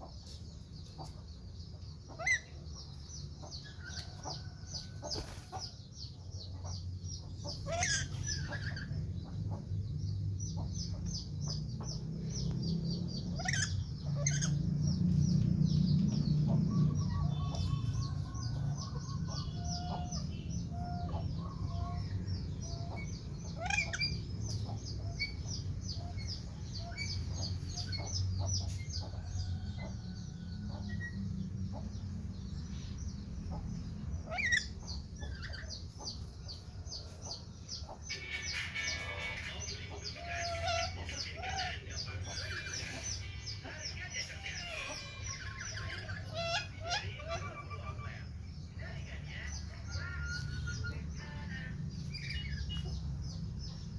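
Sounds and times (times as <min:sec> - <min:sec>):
dense high bird chirping: 0:00.0 - 0:53.9
steady low rumble: 0:08.3 - 0:36.7.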